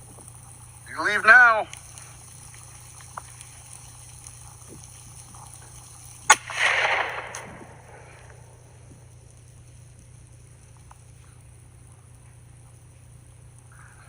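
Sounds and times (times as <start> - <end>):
gunshot: 6.3 - 8.4.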